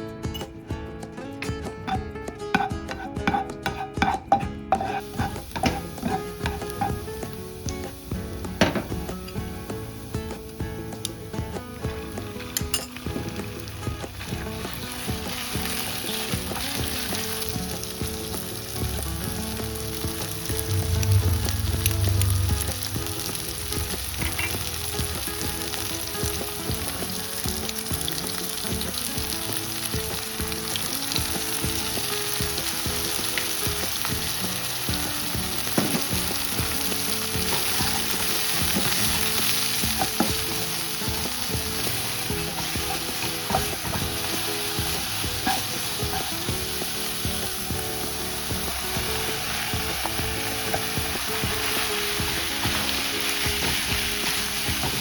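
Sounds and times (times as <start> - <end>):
food sizzling in a pan: 1.4 - 55.0
spatula scraping and clicking: 1.9 - 7.0
low rumble: 20.4 - 24.4.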